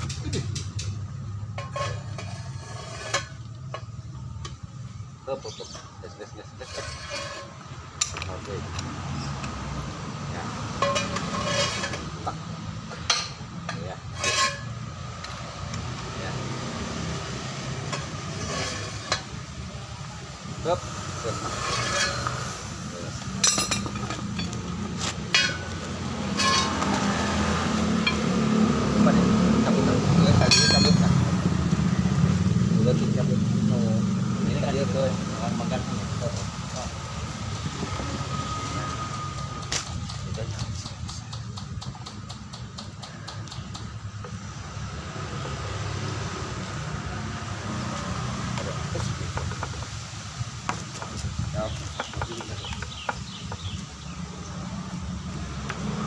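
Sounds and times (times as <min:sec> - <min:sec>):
metal tools clinking on steel: 0:00.0 - 0:04.0, 0:10.7 - 0:12.2, 0:12.9 - 0:15.4, 0:21.4 - 0:27.1, 0:30.2 - 0:31.2
low vehicle rumble: 0:00.0 - 0:56.0.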